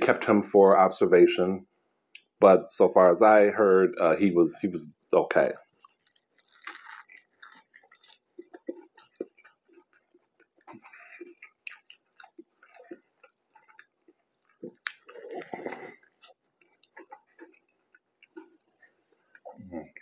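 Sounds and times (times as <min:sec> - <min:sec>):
man chewing with wet mouth smacks: 0:05.6 - 0:20.0.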